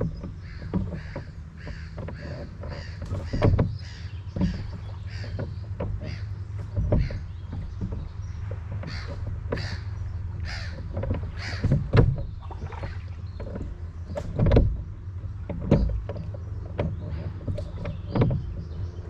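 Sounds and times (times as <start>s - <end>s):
boat dull knocks: 0.0s - 19.0s
crow cawing: 8.9s - 10.8s, 11.4s - 11.6s.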